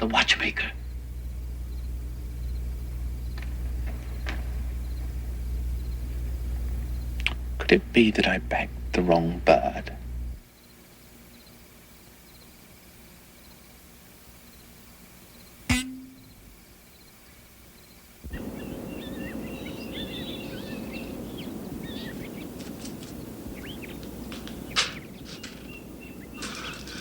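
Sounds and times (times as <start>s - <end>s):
birds chirping: 0.0s - 27.0s
sharp click: 15.7s - 16.4s
sharp knock: 15.7s - 16.4s.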